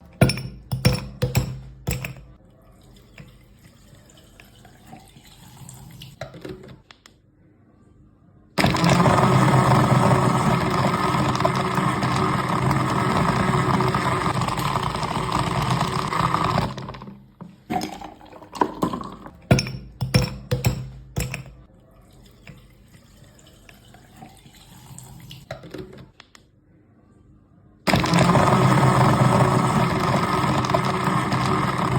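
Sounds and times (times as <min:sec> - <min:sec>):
blender motor running: 0:08.6 - 0:17.0, 0:27.9 - 0:31.9.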